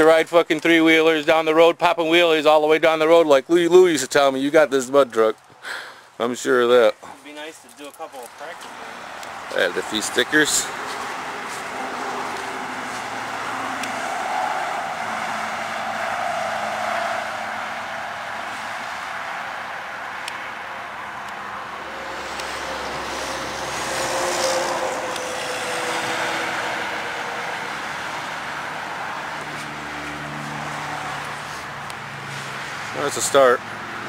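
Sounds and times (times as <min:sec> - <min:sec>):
road traffic passing: 0:00.0 - 0:34.0
vehicle passing by: 0:08.1 - 0:34.0.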